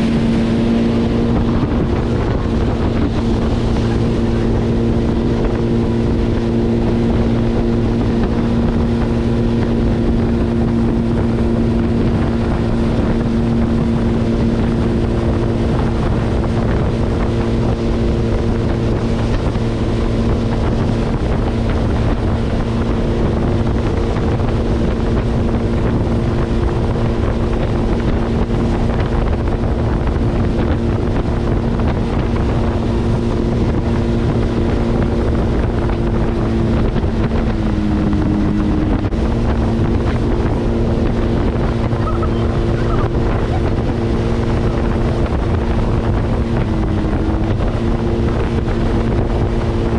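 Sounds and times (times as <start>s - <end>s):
motorboat engine droning: 0.0s - 49.9s
wind buffeting microphone: 0.0s - 49.9s.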